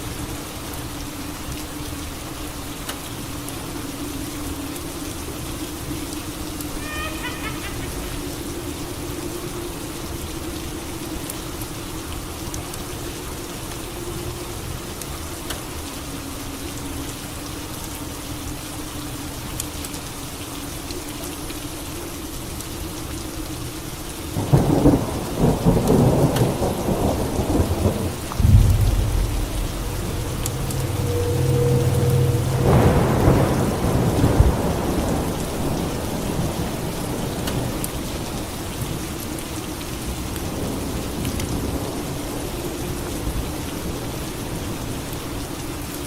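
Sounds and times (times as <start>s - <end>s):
steady rain: 0.0s - 46.0s
thunder rumbling: 24.4s - 37.3s.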